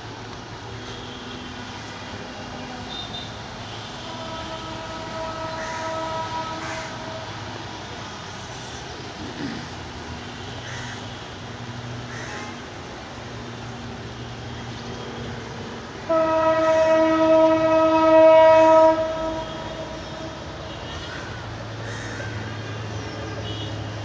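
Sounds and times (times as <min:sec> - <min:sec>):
loud horn held note: 0:16.1 - 0:20.2.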